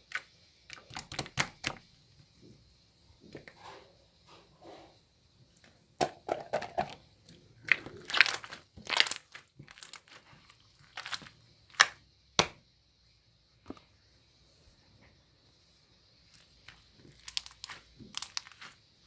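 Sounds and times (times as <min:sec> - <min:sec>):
crinkling and crunching: 0:07.6 - 0:12.0, 0:16.3 - 0:18.8.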